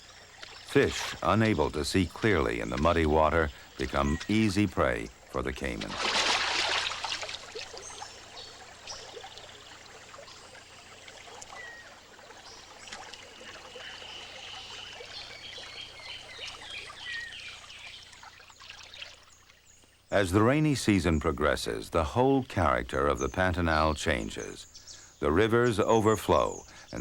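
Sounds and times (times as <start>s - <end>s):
faint chirping calls: 0.0s - 5.9s, 6.6s - 21.8s, 22.6s - 27.0s
water running and splashing: 0.0s - 20.0s.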